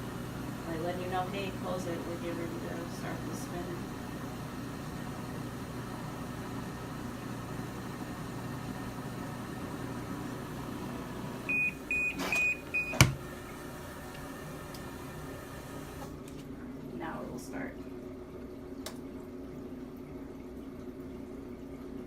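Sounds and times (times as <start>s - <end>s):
washing machine short high beeps: 11.5s - 13.2s.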